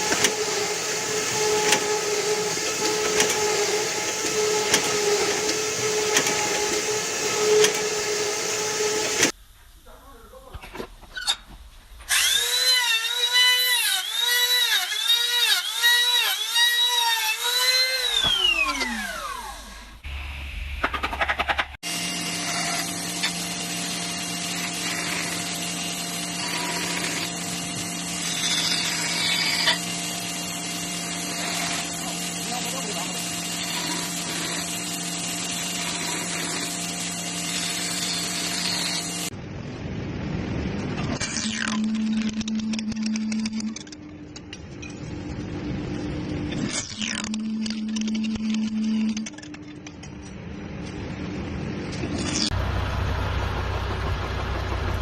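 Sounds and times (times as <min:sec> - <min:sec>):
dull mechanical sound: 0:00.0 - 0:09.4, 0:17.7 - 0:55.0
machine humming and hissing: 0:00.0 - 0:09.4, 0:21.8 - 0:55.0
small electric motor whining: 0:00.0 - 0:09.4, 0:12.1 - 0:20.1, 0:21.8 - 0:39.4, 0:41.2 - 0:44.2, 0:46.3 - 0:50.2.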